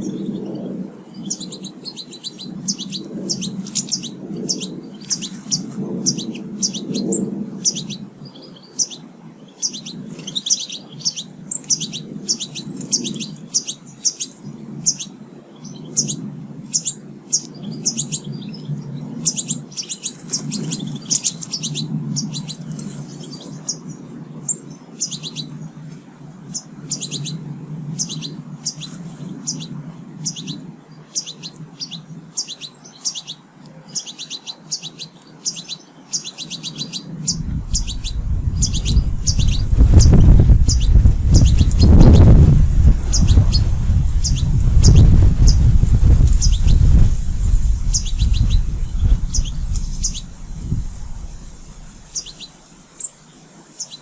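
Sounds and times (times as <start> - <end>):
small birds chirping: 0.0 - 54.0
loud low rumble: 37.2 - 52.6.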